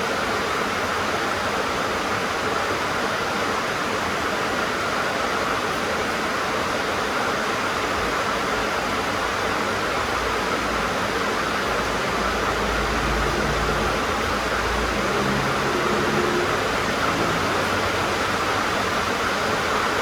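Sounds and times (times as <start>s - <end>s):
rain on a tin roof: 0.0s - 20.0s.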